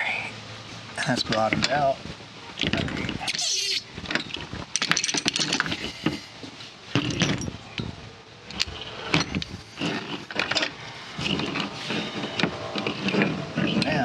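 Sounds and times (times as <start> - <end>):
tools clicking and rattling: 4.0 - 6.3, 6.9 - 14.0.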